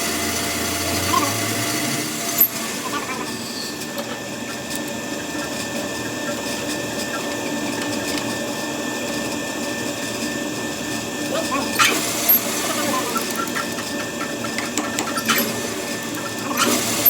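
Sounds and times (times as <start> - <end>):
workshop machine running: 0.0 - 17.0.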